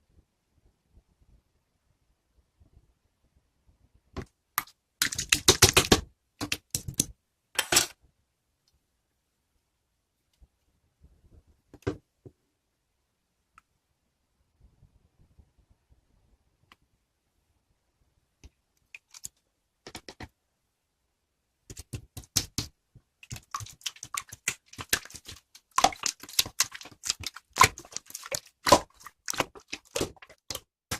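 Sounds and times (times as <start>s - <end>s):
sharp clicks and taps: 4.6s - 7.9s, 21.7s - 30.7s.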